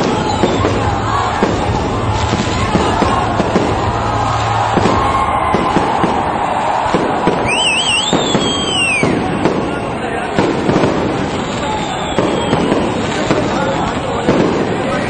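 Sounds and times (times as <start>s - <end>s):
continuous din: 0.0s - 15.0s
fireworks bursting: 0.0s - 15.0s
warbling whistle: 7.4s - 9.8s, 11.6s - 13.1s.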